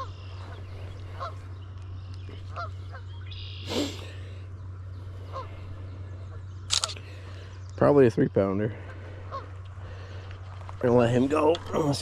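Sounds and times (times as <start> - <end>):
geese honking: 0.0 - 1.6, 2.3 - 3.8, 4.9 - 6.4, 8.8 - 10.2
steady low hum: 0.0 - 12.0.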